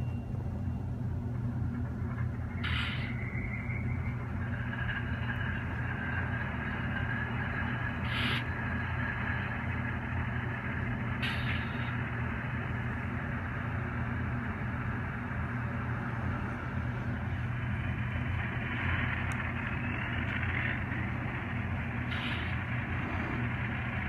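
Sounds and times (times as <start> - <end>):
diesel locomotive idling: 0.0 - 24.0
hiss: 2.6 - 3.2, 6.4 - 10.2, 11.0 - 12.0, 22.1 - 24.0.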